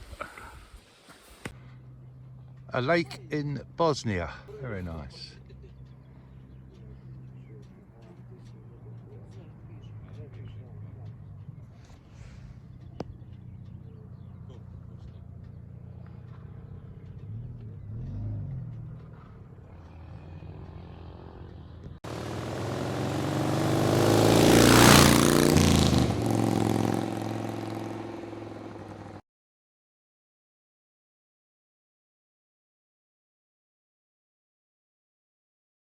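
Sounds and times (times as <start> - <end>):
low engine hum: 1.6 - 29.2
vehicle driving past: 3.6 - 29.2.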